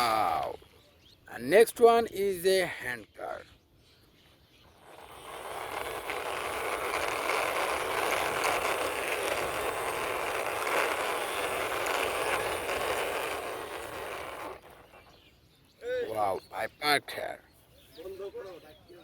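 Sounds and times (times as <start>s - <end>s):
toy car wheels rolling: 0.0s - 0.5s, 4.7s - 15.2s.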